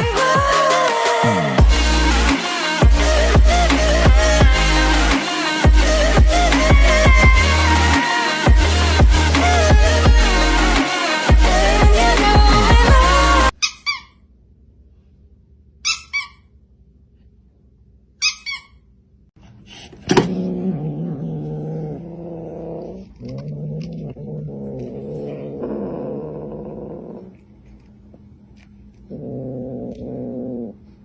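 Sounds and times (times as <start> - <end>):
cat squeaking: 13.6 - 14.2, 15.8 - 16.5, 18.2 - 18.8.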